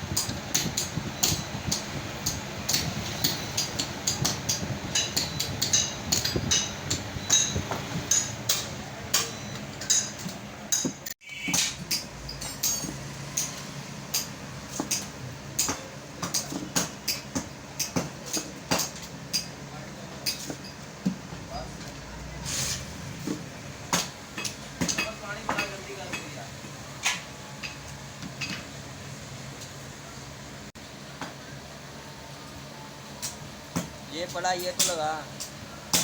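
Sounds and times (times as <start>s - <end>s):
hammer striking metal: 0.1s - 19.5s.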